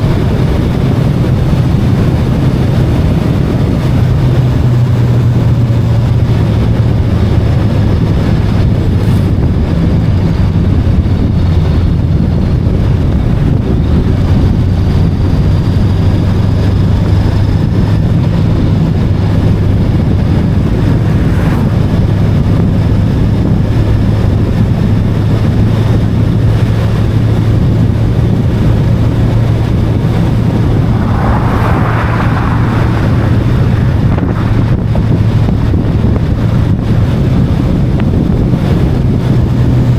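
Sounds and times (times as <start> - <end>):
motorcycle engine cruising: 0.0 - 39.9
wind noise on microphone: 0.0 - 39.9
brief rush of noise: 29.4 - 35.2.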